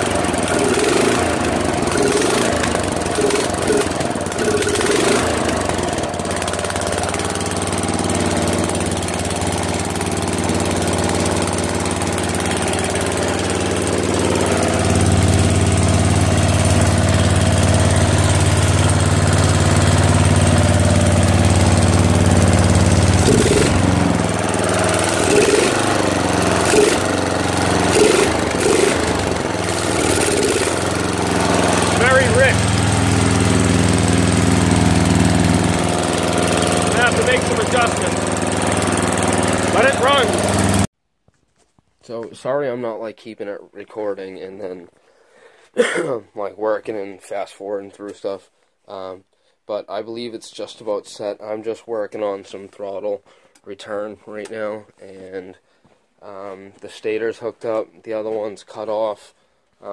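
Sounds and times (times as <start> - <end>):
mower engine running: 0.0 - 40.9.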